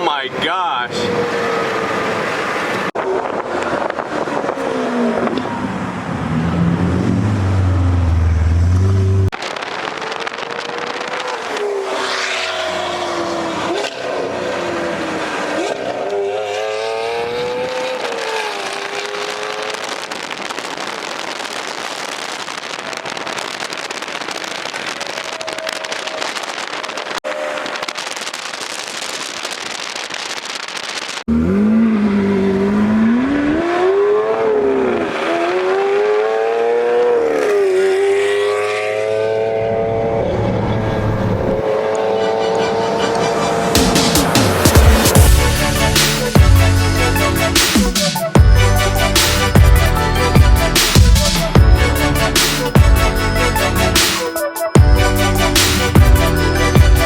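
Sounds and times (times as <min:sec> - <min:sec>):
sports car engine revving: 0:10.4 - 0:19.8, 0:31.3 - 0:47.5
rushing noise: 0:38.0 - 0:57.0.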